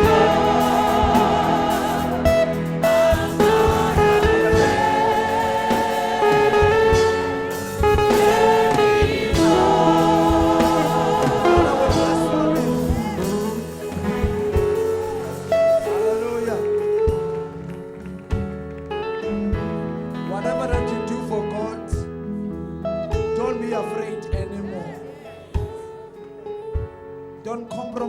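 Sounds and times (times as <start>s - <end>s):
gospel choir singing: 0.0s - 17.8s
instrumental accompaniment: 0.0s - 27.4s.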